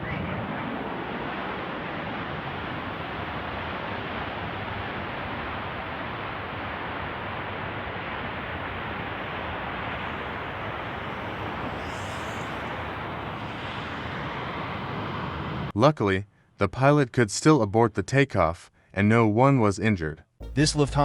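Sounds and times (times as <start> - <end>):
distant jet engines rushing: 0.0 - 15.7.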